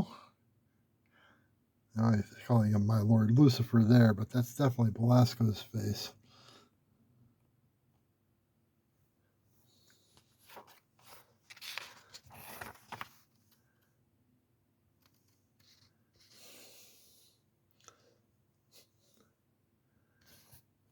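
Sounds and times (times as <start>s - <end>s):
comic book pages rustling: 10.1s - 13.6s.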